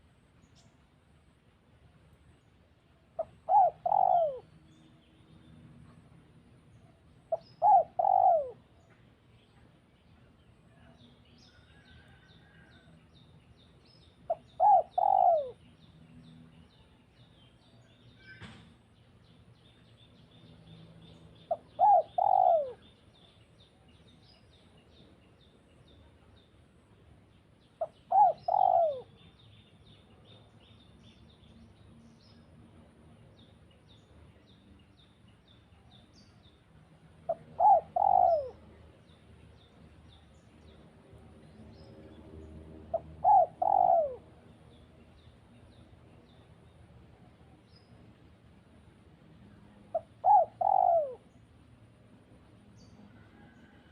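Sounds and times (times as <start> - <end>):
small birds chirping: 2.2 - 48.1
dove cooing: 3.2 - 4.6, 7.3 - 8.7, 14.3 - 15.6, 21.5 - 22.9, 27.8 - 29.2, 37.3 - 38.7, 42.8 - 44.3, 49.9 - 51.3.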